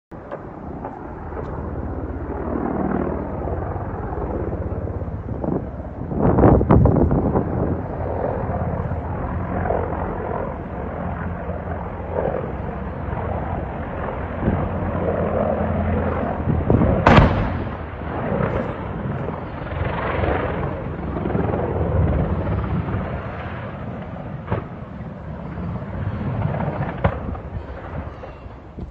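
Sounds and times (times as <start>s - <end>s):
helicopter rotor and engine drone: 0.1s - 28.9s
sharp bang: 17.0s - 17.9s.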